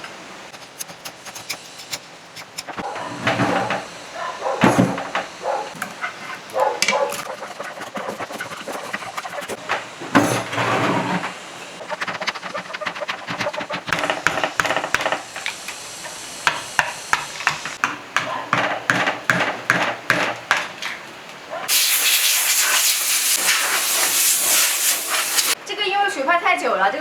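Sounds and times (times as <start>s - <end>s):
loud steady hiss: 13.9s - 17.8s, 21.7s - 25.7s.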